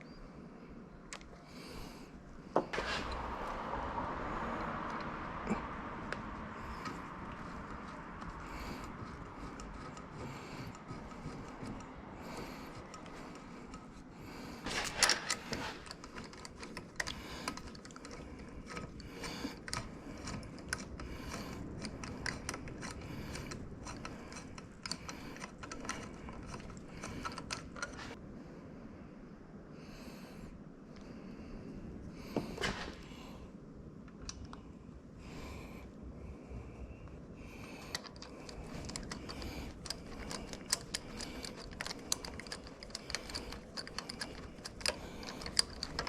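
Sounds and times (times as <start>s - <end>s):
low steady background noise: 0.0s - 46.0s
metallic clicks of hand tools: 4.6s - 28.2s, 37.6s - 46.0s.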